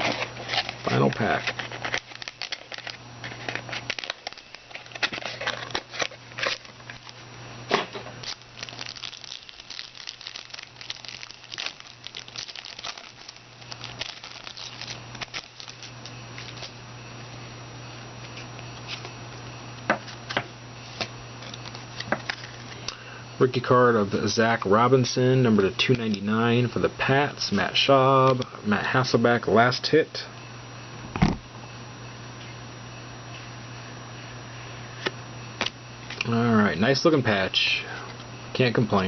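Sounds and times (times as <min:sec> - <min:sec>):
foil wrapper crinkling: 0:00.0 - 0:07.2, 0:08.1 - 0:16.8
steady low hum: 0:00.0 - 0:39.0.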